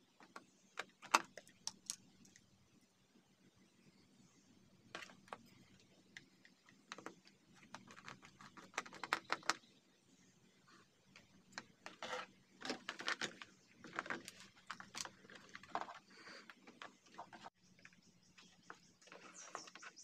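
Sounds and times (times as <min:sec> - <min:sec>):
small parts and tools clattering: 0:11.1 - 0:20.0.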